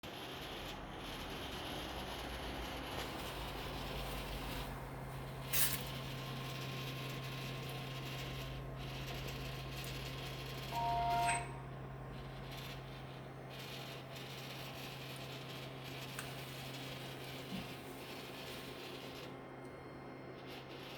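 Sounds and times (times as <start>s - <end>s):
water chiller humming: 2.0s - 20.8s
two-note tone: 10.8s - 11.5s.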